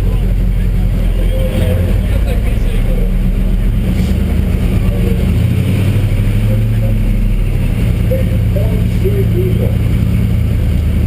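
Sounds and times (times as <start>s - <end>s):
pickup diesel engine under load: 0.0s - 11.0s.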